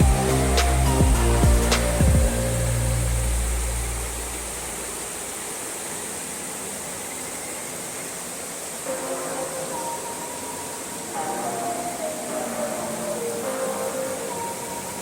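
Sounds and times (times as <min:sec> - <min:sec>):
background music: 0:00.0 - 0:04.4, 0:08.9 - 0:15.0
mountain stream rushing: 0:00.0 - 0:15.0.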